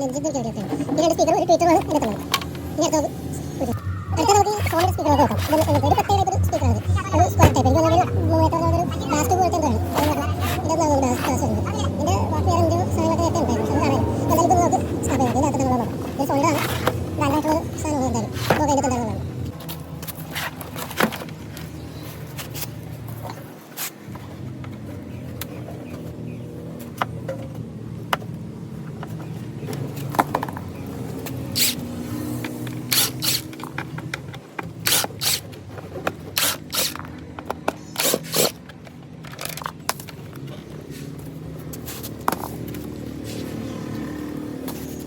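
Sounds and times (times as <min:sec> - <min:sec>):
steady low hum: 0:02.6 - 0:19.6
hand tools scraping casing: 0:32.5 - 0:33.8, 0:34.8 - 0:35.5, 0:36.2 - 0:37.2, 0:37.8 - 0:38.7.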